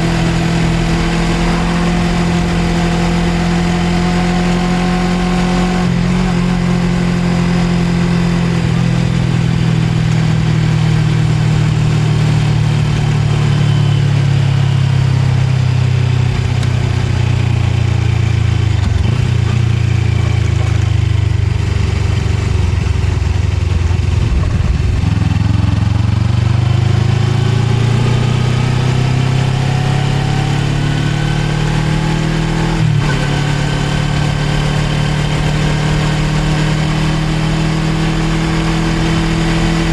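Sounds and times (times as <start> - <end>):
motorcycle engine: 0.0 - 39.9
road and wind noise: 0.0 - 39.9.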